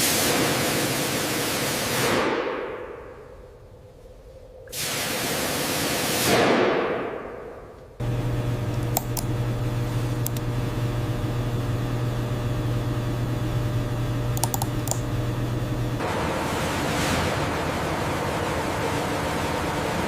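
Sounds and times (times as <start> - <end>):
steady low hum: 7.9 - 20.0
sharp clicks: 8.7 - 9.4, 10.2 - 10.5, 14.3 - 15.2.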